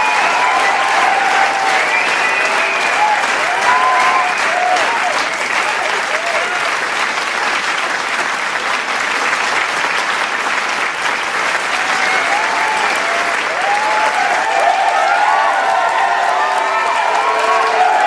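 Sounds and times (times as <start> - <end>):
cheers and whoops: 0.0 - 6.7, 11.7 - 18.0
large crowd clapping: 0.0 - 18.0.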